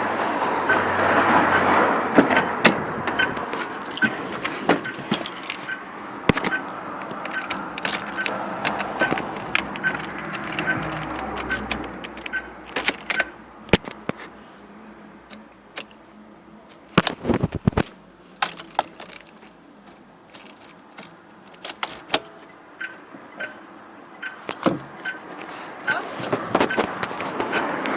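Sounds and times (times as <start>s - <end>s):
metallic jangling of keys: 4.9s - 5.8s.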